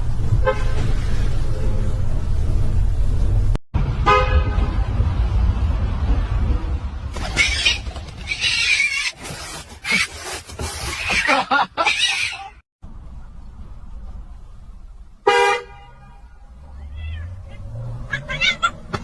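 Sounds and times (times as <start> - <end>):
street traffic rumble: 0.0 - 19.0
cats hissing and spitting: 7.2 - 12.4.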